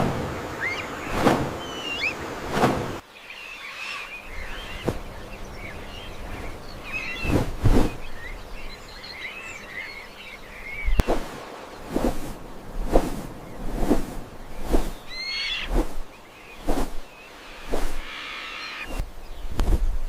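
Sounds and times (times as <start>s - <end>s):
forest background hiss: 0.0s - 20.0s
small birds chirping: 0.2s - 20.0s
brief whooshes: 3.7s - 5.0s, 15.6s - 19.1s.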